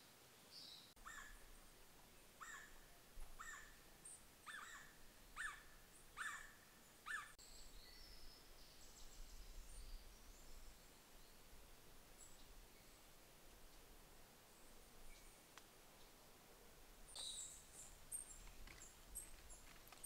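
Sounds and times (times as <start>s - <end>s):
bird calls: 0.6s - 1.6s, 2.4s - 11.4s, 17.1s - 20.0s.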